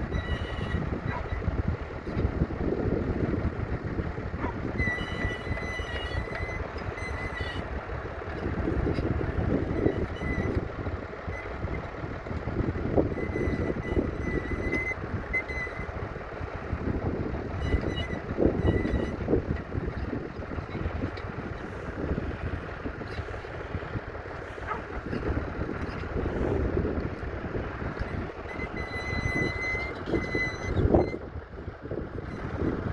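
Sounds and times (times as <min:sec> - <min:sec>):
diesel tractor engine under load: 0:00.0 - 0:32.9
faint high squeal: 0:00.1 - 0:01.4, 0:04.7 - 0:07.7, 0:13.1 - 0:15.9, 0:17.6 - 0:19.3, 0:28.0 - 0:31.2.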